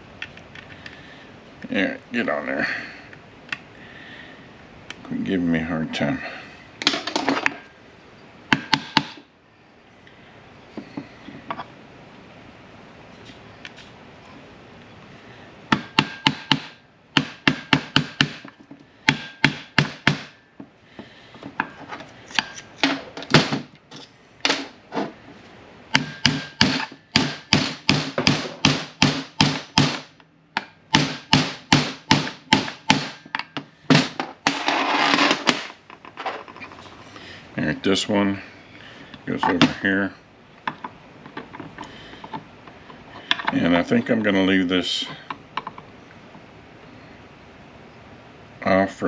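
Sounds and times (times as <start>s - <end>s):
hammer tapping metal part: 8.5s - 9.2s, 15.7s - 20.4s.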